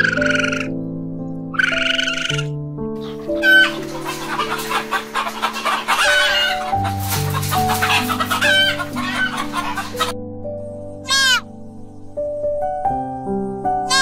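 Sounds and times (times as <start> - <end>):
slow low background music: 0.0 - 14.0
poultry flock calling: 1.6 - 10.2, 11.0 - 11.4.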